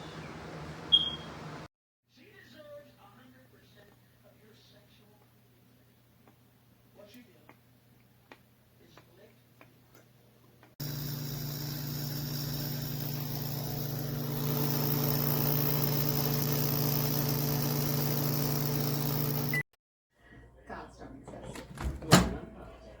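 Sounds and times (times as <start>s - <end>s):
microwave oven humming: 10.8s - 19.6s.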